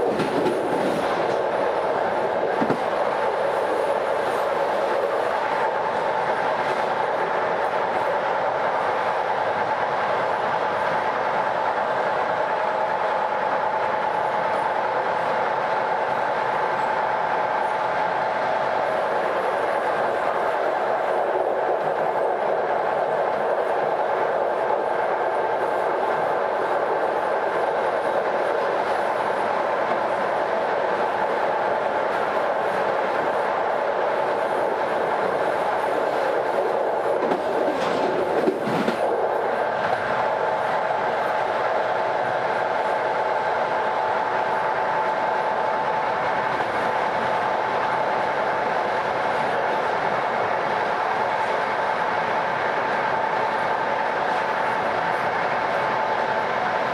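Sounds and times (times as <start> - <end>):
train wheels singing on rails: 0.0 - 56.9.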